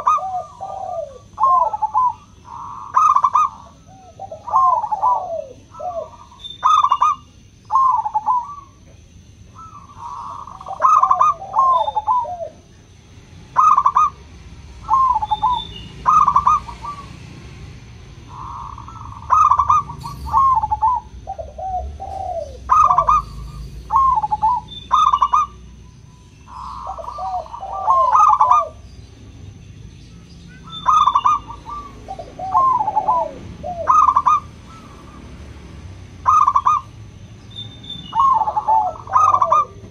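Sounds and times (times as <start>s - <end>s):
doves cooing: 0.0s - 29.4s, 30.5s - 39.9s
faint steady high tone: 22.9s - 28.5s.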